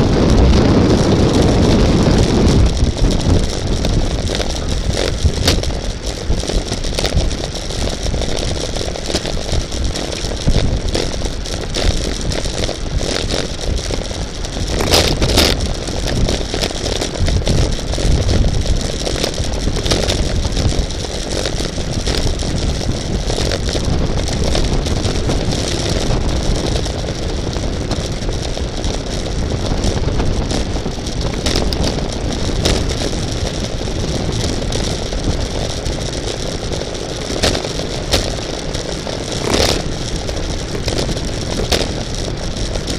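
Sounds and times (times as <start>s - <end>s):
wind rushing: 0.0s - 13.6s
camera rattling: 0.0s - 42.9s.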